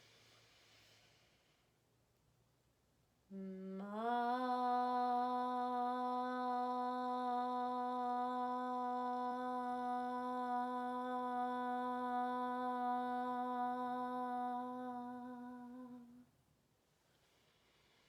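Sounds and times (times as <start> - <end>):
woman humming a long note: 3.3 - 16.2.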